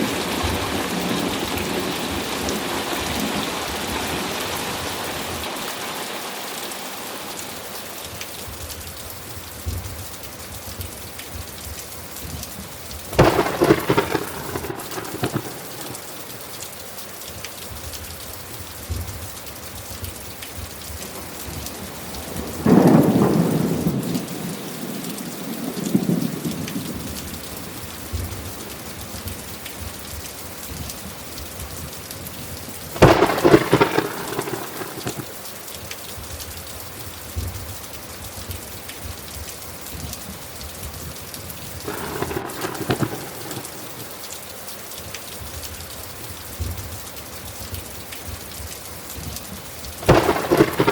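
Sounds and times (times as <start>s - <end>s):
steady rain falling: 0.0s - 50.9s
thunder claps: 13.0s - 16.3s, 21.0s - 28.8s, 32.9s - 35.4s, 41.8s - 44.3s, 50.0s - 50.9s.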